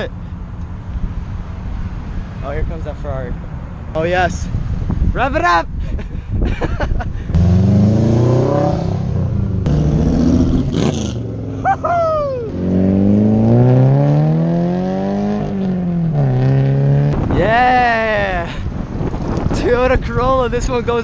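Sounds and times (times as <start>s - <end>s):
car engines revving: 7.3s - 17.3s.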